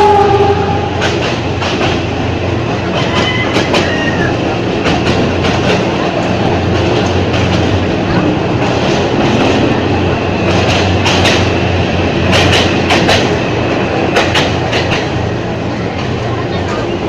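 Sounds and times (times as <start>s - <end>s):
train wheels clicking over rail joints: 0.8s - 17.0s.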